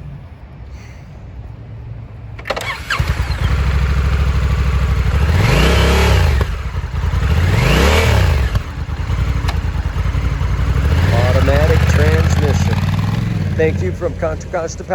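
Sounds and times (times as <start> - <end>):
motorcycle starter cranking: 2.4 - 13.7
motorcycle engine idling and revving: 2.4 - 14.9.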